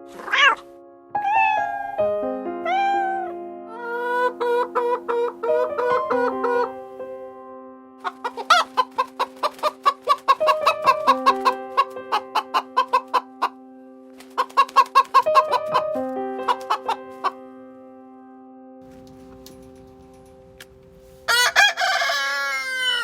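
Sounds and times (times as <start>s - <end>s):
background music: 0.0s - 23.0s
chicken clucking: 2.7s - 7.0s, 8.0s - 13.6s, 14.2s - 17.4s, 21.3s - 23.0s.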